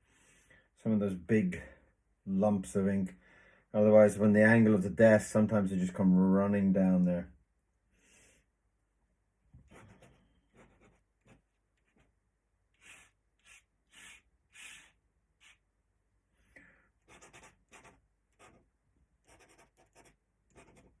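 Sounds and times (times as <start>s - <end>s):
pen scratching on paper: 9.6s - 12.1s, 12.8s - 15.6s, 17.1s - 21.0s.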